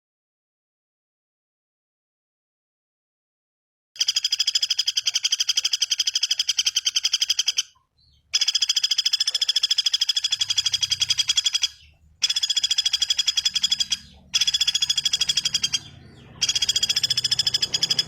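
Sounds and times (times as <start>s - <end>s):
bird trilling: 4.0s - 18.0s.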